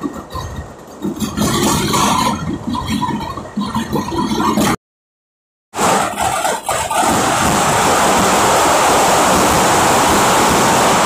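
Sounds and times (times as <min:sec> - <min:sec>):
fireworks barrage: 0:05.8 - 0:11.0.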